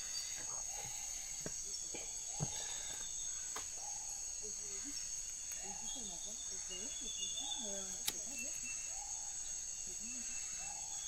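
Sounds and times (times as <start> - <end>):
crickets and insects chirping: 0.0 - 11.0
sharp clicks: 8.0 - 8.3.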